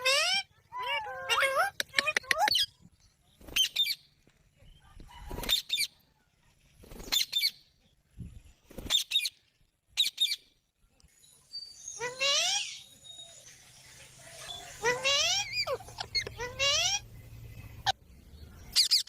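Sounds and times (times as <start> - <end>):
parrot calling: 0.0 - 2.7, 14.4 - 17.1.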